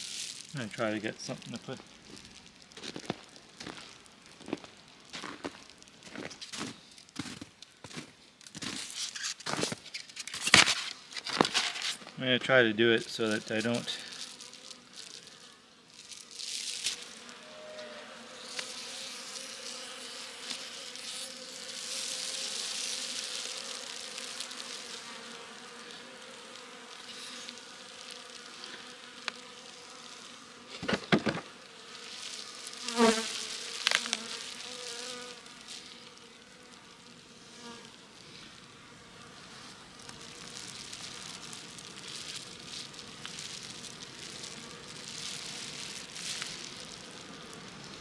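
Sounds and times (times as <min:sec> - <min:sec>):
bees buzzing: 0:00.0 - 0:08.0, 0:10.5 - 0:48.0
loud knocks and scrapes: 0:09.0 - 0:12.1, 0:30.7 - 0:31.5.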